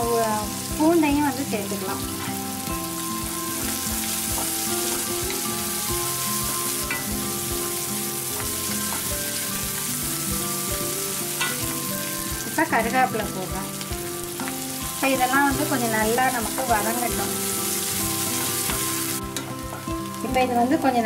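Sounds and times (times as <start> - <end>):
vegetables sizzling in a wok: 0.0 - 21.0.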